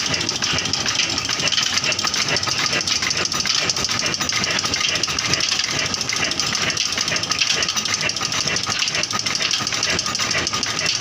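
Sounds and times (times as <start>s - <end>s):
pump engine knocking: 0.0s - 11.0s.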